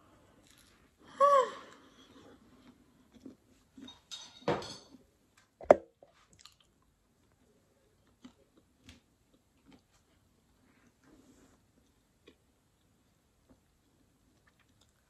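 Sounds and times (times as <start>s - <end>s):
person chewing food: 7.9s - 10.4s, 11.7s - 15.0s.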